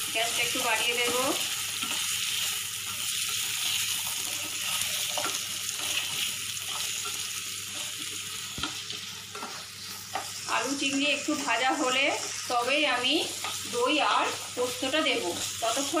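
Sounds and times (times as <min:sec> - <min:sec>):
food sizzling in a frying pan: 0:00.0 - 0:16.0
spatula scraping pan: 0:00.9 - 0:11.2.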